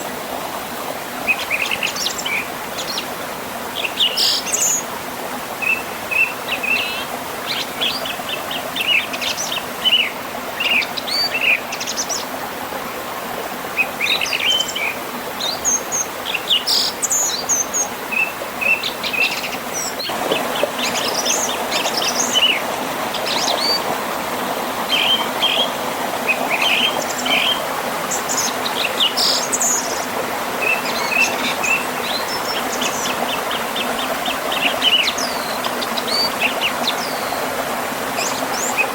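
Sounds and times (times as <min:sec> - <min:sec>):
river and waterfall rushing: 0:00.0 - 0:38.9
birds chirping and trilling: 0:03.8 - 0:04.9, 0:05.6 - 0:12.3, 0:13.8 - 0:23.9, 0:24.9 - 0:37.5.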